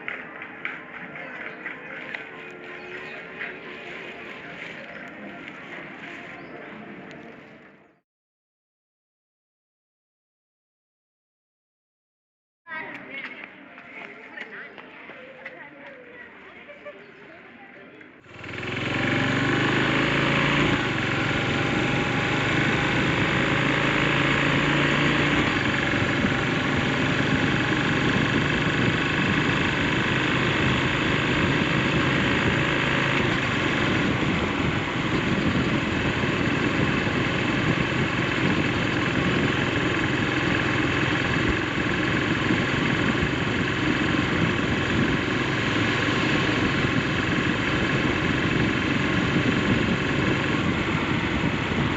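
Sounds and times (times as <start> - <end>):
motorcycle engine running: 18.2 - 51.9.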